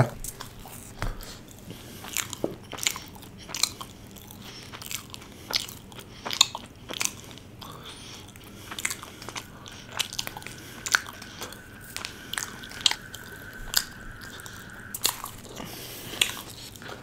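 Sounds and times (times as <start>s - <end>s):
close chewing: 0.3s - 17.0s
food crunching: 0.3s - 17.0s
mouth clicks: 5.6s - 16.9s.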